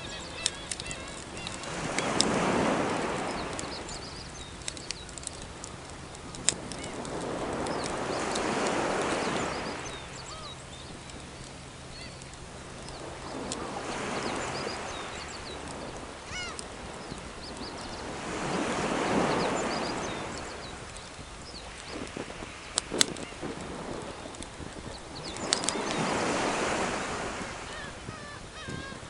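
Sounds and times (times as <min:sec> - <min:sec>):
wood fire crackling: 0:00.0 - 0:18.8, 0:20.3 - 0:26.0
sea waves washing onto shore: 0:00.0 - 0:29.0.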